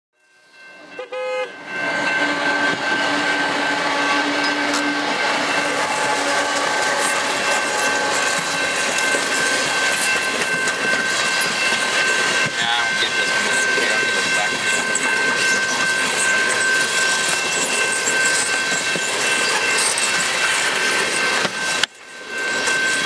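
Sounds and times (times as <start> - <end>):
train wheels rumbling on rail: 0.8 - 23.0
pitched horn-like tone: 1.0 - 8.3.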